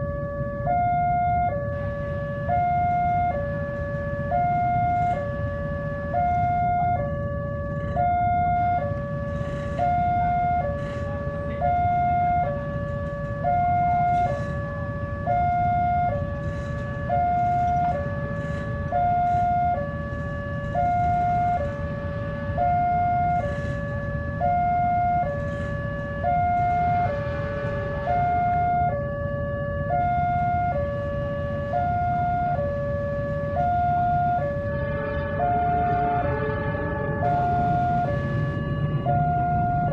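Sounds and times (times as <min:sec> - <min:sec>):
low rumble: 0:00.0 - 0:39.9
two-tone crossing alarm: 0:00.0 - 0:39.9.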